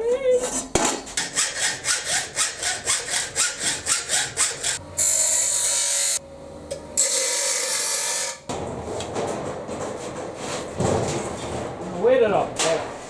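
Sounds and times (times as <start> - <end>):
hacksaw rasping on steel: 1.1 - 6.2.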